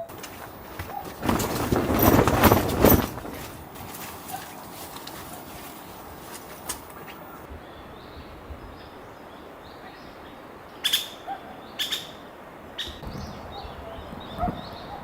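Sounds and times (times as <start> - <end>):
small birds chirping: 4.3 - 15.0.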